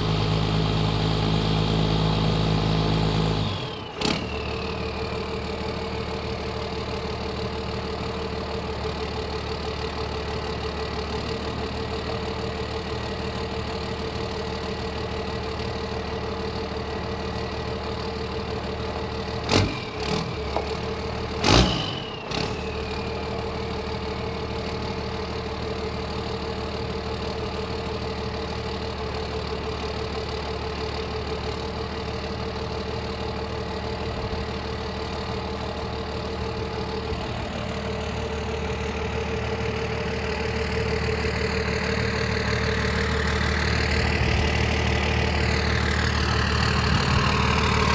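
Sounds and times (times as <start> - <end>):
diesel engine idling: 0.0 - 47.9
engine revving bursts: 21.2 - 22.8.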